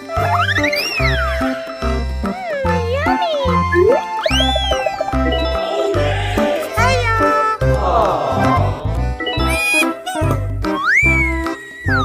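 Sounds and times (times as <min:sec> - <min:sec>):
upbeat children's music: 0:00.0 - 0:12.0
rising cartoon sound effect: 0:02.4 - 0:08.9.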